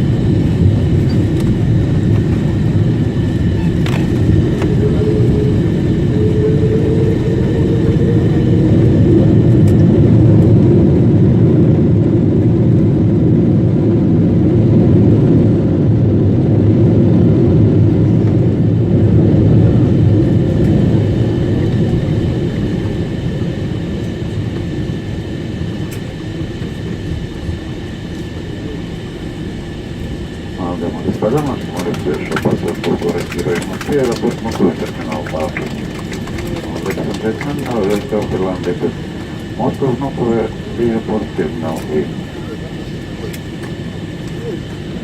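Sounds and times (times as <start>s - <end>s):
jet engines roaring: 0.0s - 45.0s
runway rumble: 0.0s - 45.0s.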